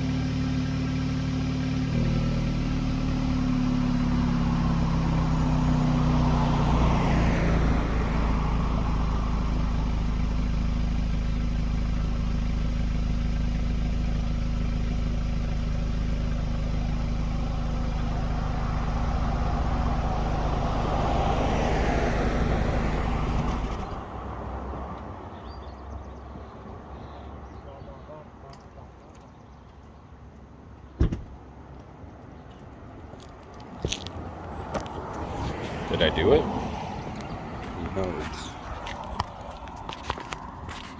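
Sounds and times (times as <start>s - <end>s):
car engine idling: 0.0s - 24.1s, 33.2s - 40.9s.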